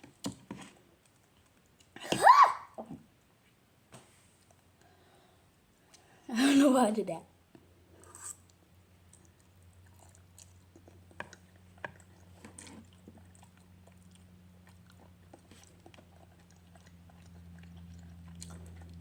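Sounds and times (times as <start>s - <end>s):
person chewing: 8.0s - 19.0s.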